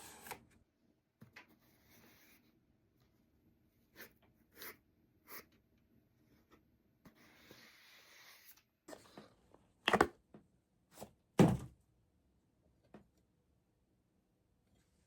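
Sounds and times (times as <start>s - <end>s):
equipment knocks and thumps: 11.4s - 11.7s.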